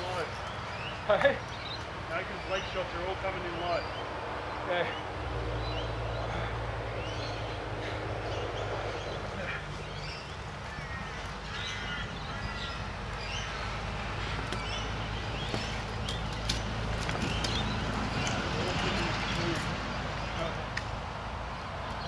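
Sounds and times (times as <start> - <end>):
steady low hum: 0.0 - 21.8
birds calling: 0.0 - 22.0.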